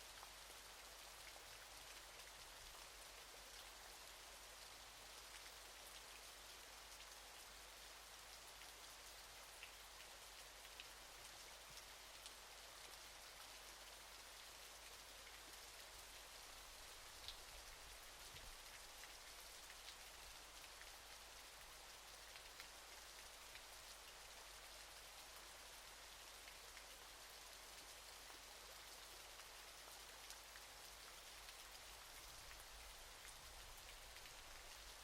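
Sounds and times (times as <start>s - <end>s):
small splashes and drips: 16.0s - 21.7s, 31.3s - 35.0s.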